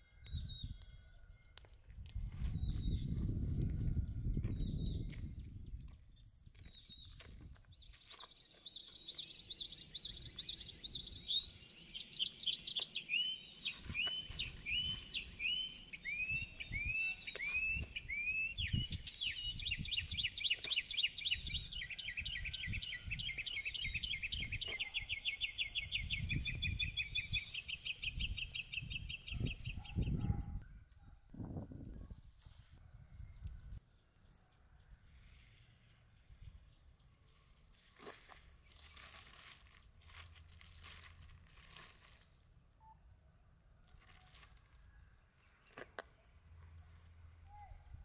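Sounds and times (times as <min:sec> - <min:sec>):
songbird singing: 0:00.0 - 0:48.0.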